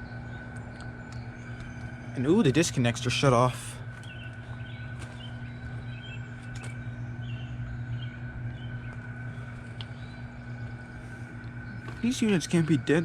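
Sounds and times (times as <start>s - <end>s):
faint bird chirps: 0.0s - 13.0s
low machine hum: 0.0s - 13.0s.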